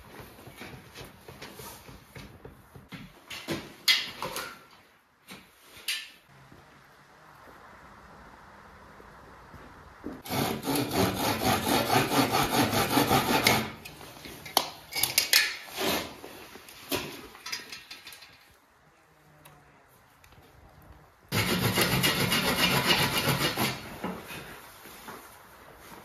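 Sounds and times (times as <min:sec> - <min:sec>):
hand saw cutting wood: 0:10.2 - 0:14.0, 0:21.3 - 0:24.0.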